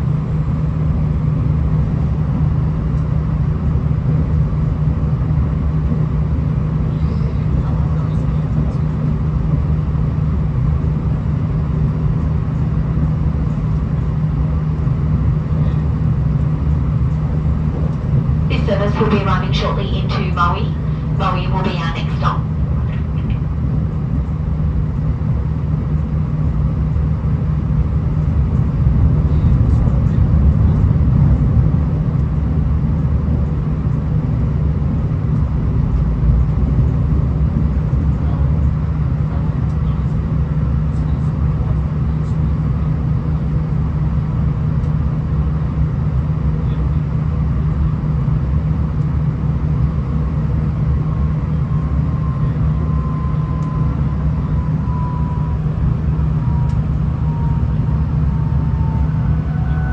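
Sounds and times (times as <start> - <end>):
railcar engine and wheels drone: 0.0 - 59.9
faint high whine: 50.0 - 59.9.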